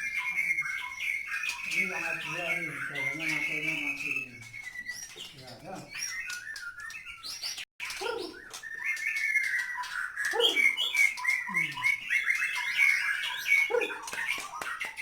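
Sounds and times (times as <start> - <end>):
birds singing chirps and whistles: 0.0 - 15.0.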